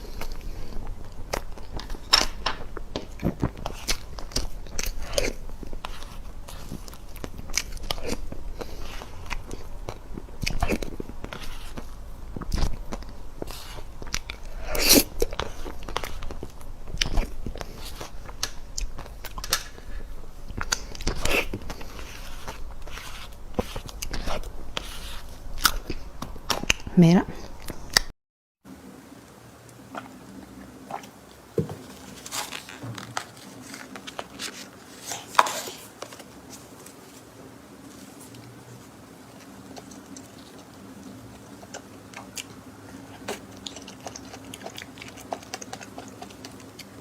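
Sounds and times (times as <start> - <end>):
crunching and chewing: 0.0 - 26.9, 37.8 - 47.0.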